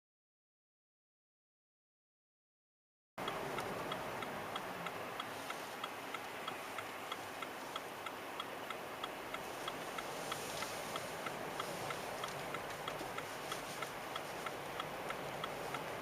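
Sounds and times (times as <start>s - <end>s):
steady hiss: 3.2s - 16.0s
turn signal ticking: 3.2s - 16.0s.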